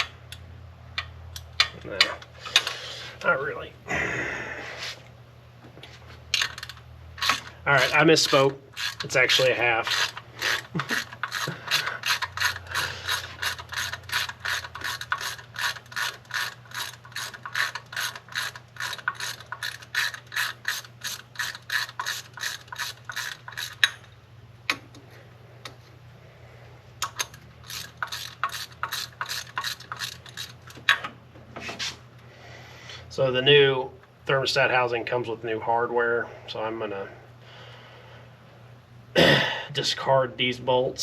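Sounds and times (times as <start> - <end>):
ratchet wrench clicking: 6.3 - 24.9, 27.0 - 31.0.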